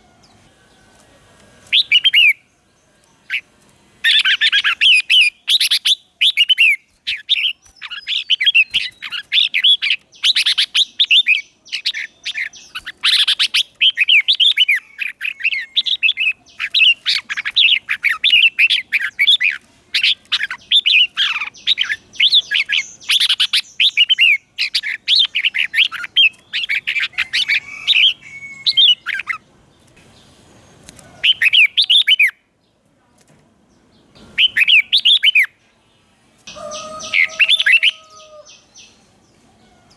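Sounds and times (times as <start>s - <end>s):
bird singing warbling phrases: 1.6s - 30.4s, 31.0s - 32.5s, 33.9s - 35.6s, 36.5s - 39.9s.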